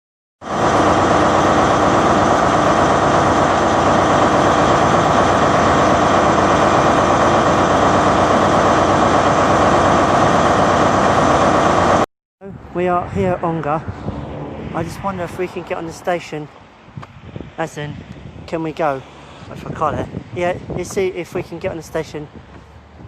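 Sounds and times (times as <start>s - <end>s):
engine idling: 0.4s - 12.0s.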